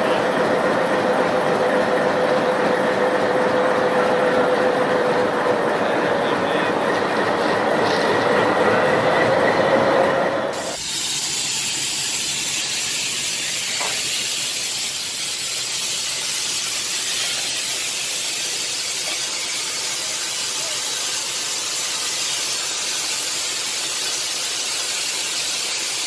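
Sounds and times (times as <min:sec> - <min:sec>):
steady hiss: 0:10.6 - 0:26.0.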